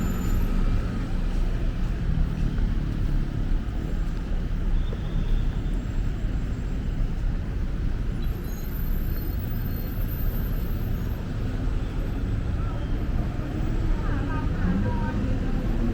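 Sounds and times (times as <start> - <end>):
city street traffic rumble: 0.0 - 15.9.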